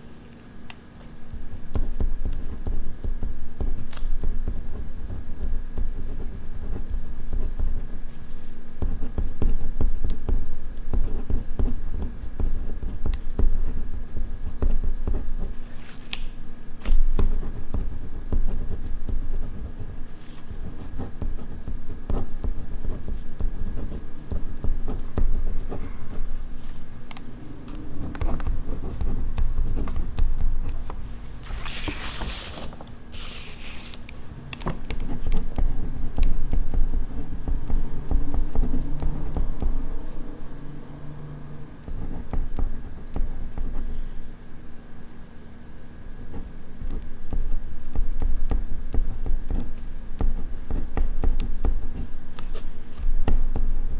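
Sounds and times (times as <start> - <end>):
ballpoint pen writing on paper: 1.5 - 13.8, 14.4 - 15.6, 17.1 - 26.9, 28.0 - 31.0, 34.9 - 39.8, 41.8 - 44.0, 46.2 - 52.7.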